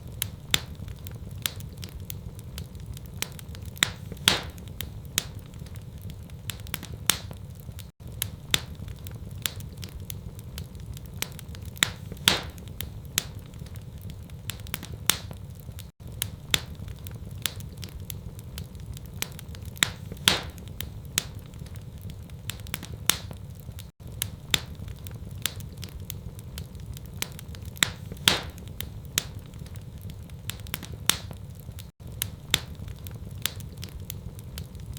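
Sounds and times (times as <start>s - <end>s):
wood fire crackling: 0.0s - 34.9s.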